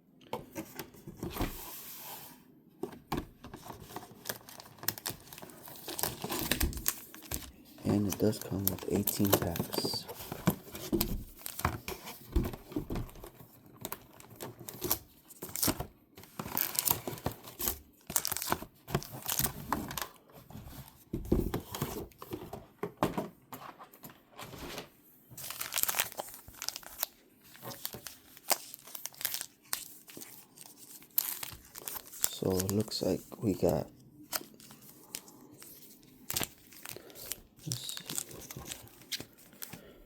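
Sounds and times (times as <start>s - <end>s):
plastic packaging crackling: 3.7s - 11.7s, 16.4s - 20.0s, 25.4s - 40.0s.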